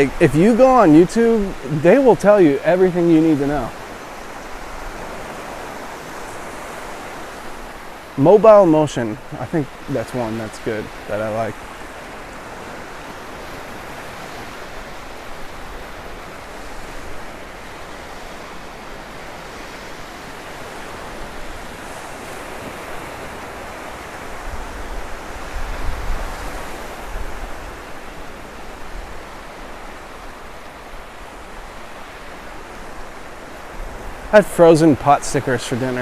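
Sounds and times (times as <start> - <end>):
surf washing onto beach: 0.0 - 36.0
wind rumble on microphone: 11.6 - 30.4.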